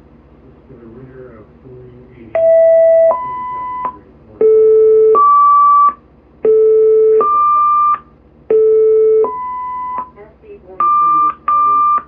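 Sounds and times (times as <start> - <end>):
two-tone paging tones: 2.4 - 10.1, 10.8 - 12.0.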